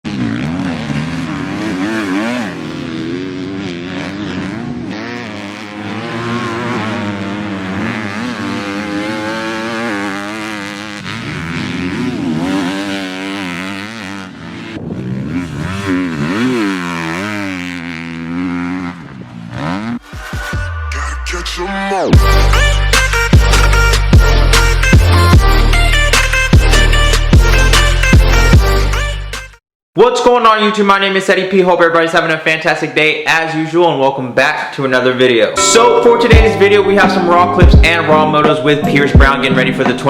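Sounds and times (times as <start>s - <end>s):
motocross bike engine revving: 0.1s - 20.6s.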